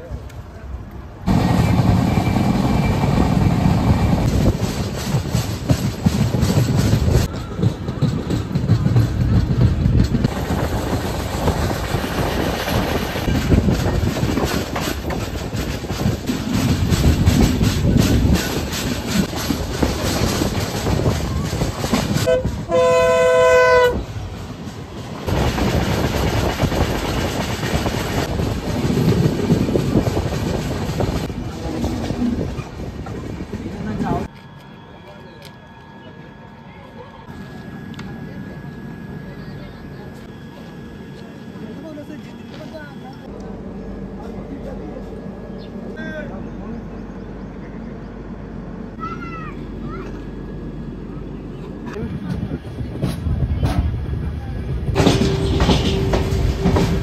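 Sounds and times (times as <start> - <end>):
train wheels rumbling on rails: 0.0 - 57.0
train wheels clattering over rail joints: 1.4 - 23.4, 54.8 - 57.0
clacks over rail joints: 4.2 - 12.0, 54.9 - 57.0
train horn: 22.2 - 24.0.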